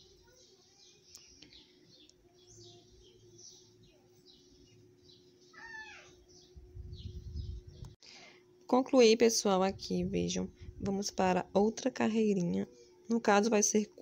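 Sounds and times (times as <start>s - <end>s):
faint bird chirping: 0.0s - 8.5s.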